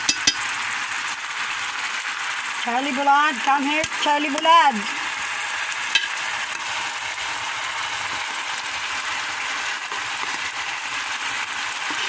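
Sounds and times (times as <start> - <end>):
chicken frying in hot oil: 0.0 - 12.0.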